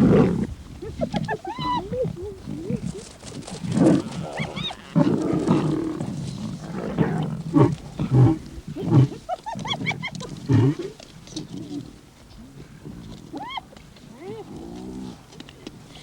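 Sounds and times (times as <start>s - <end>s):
hyenas crying: 0.0s - 3.1s, 3.7s - 6.0s, 13.3s - 14.5s
lions growling and snarling: 0.0s - 13.4s, 14.1s - 15.4s.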